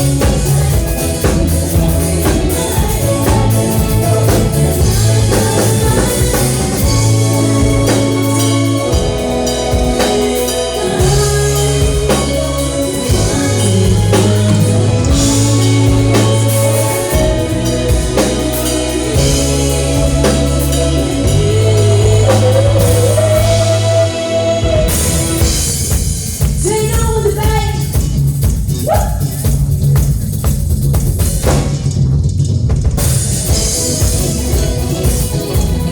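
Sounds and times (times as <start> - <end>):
wavering melody line: 0.0 - 25.9
live rock band playing: 0.0 - 35.9.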